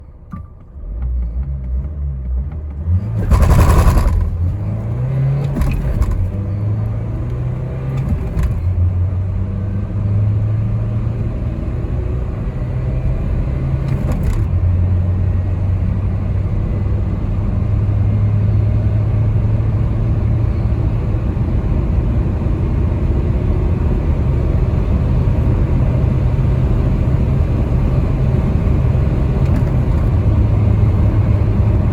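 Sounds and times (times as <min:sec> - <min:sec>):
van accelerating through gears: 0:00.0 - 0:31.9.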